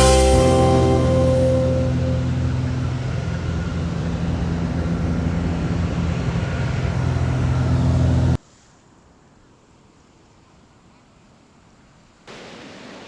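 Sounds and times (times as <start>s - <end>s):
faint hiss: 0.0s - 2.8s
airplane engine drone in cabin: 0.0s - 8.4s.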